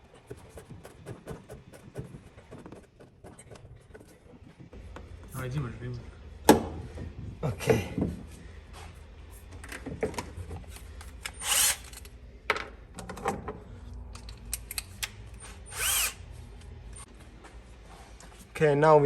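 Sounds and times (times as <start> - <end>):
power tool whirring: 11.3 - 12.0, 15.4 - 16.2.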